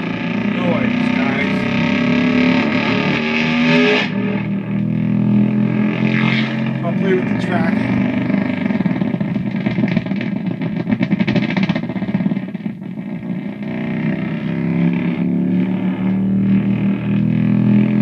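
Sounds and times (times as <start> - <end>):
guitar pedal feedback warbling: 0.0 - 9.6.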